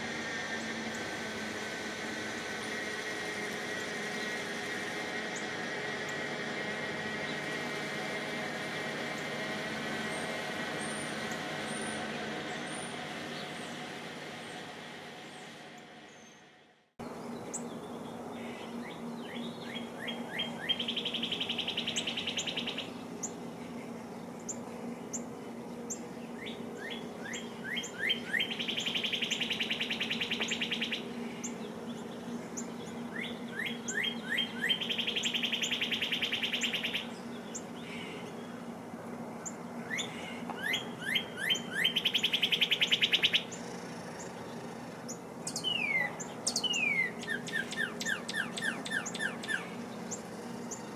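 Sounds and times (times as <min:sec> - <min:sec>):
songbird singing with trill: 0:17.0 - 0:23.4, 0:24.0 - 0:38.7, 0:39.4 - 0:50.9.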